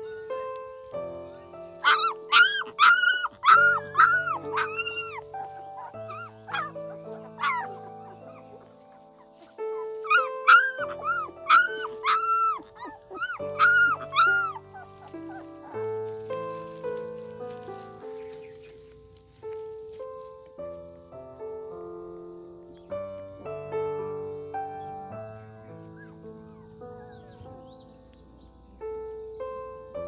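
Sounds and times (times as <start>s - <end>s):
soft background music: 0.0s - 30.0s
puppies whining and yelping: 1.8s - 16.8s, 25.0s - 27.7s.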